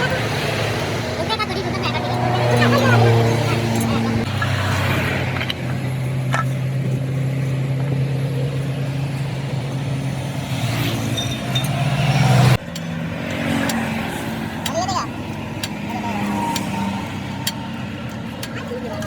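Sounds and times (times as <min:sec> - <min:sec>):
engine running: 0:00.0 - 0:19.0.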